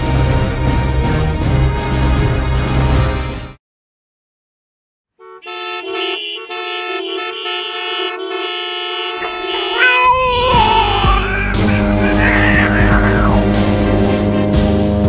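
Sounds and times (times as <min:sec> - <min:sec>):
car horns honking: 0:05.2 - 0:14.5.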